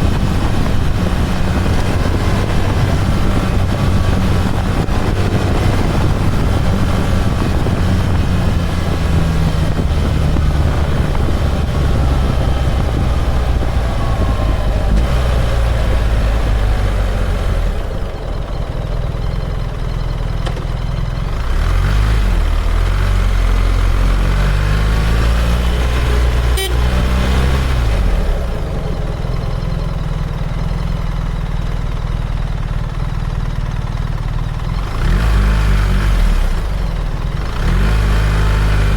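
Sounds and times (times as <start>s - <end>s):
wind rushing over microphone: 0.0s - 18.8s
motorcycle engine running: 0.0s - 38.9s.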